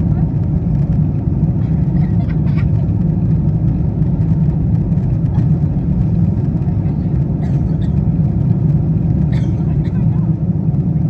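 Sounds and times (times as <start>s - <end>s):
airplane cabin engine rumble: 0.0s - 11.0s.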